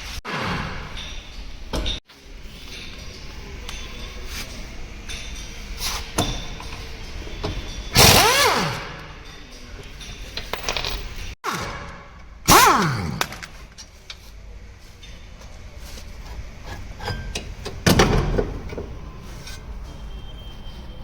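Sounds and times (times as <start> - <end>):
spinning power tool bursts: 8.0 - 8.9, 12.5 - 13.2.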